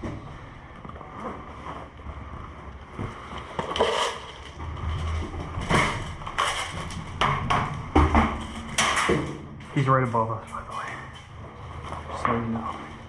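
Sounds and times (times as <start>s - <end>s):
sharp knocks and clatters: 3.5s - 9.9s.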